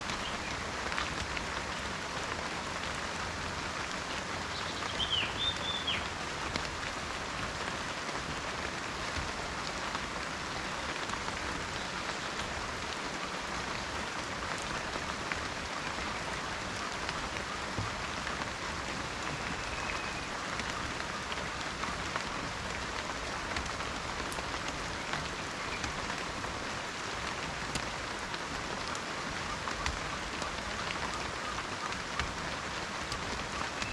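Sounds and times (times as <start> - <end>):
rain on leaves: 0.0 - 33.9
bird call: 19.0 - 21.3, 33.4 - 33.9.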